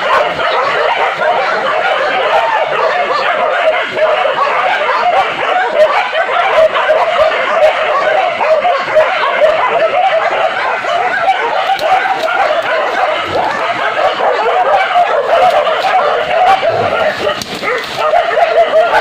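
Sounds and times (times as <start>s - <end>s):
dogs barking and yelping: 0.0s - 19.0s.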